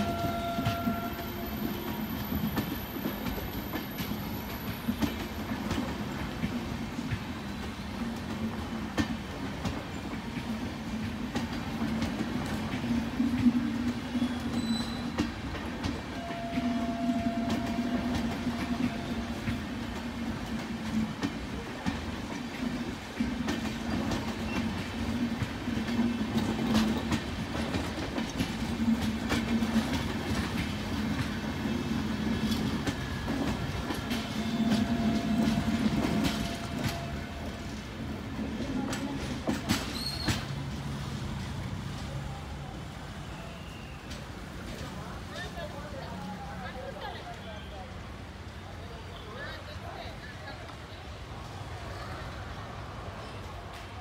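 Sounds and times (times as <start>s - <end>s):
wheels clicking over rail joints: 0.0s - 42.2s
train wheels rumbling: 0.0s - 54.0s.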